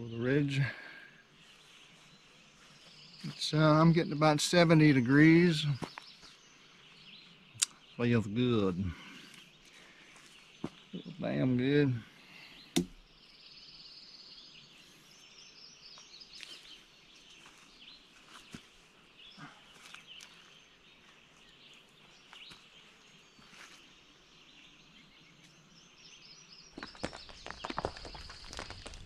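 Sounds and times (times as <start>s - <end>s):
faint birdsong: 0.0s - 29.0s.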